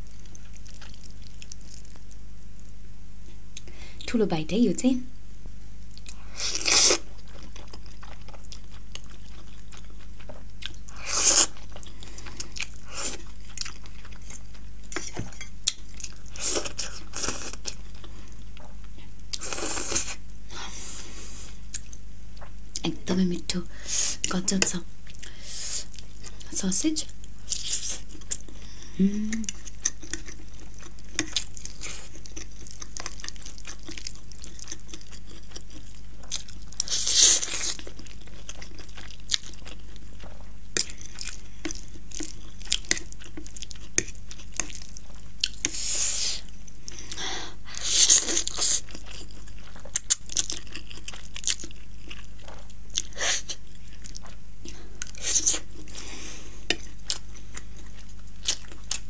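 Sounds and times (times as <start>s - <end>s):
low electrical hum: 0.0s - 59.0s
chewing with wet clicks: 0.1s - 2.1s, 7.2s - 10.9s, 11.5s - 16.3s, 29.4s - 36.9s, 37.7s - 45.8s, 48.5s - 55.2s, 56.7s - 59.0s.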